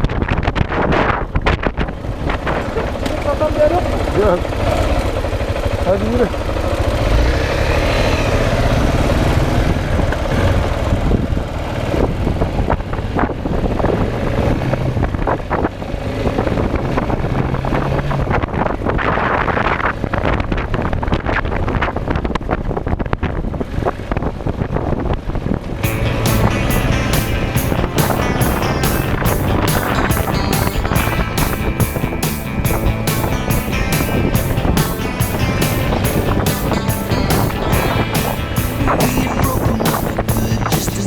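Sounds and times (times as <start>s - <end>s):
motorcycle engine running: 2.0s - 12.2s, 25.8s - 41.0s.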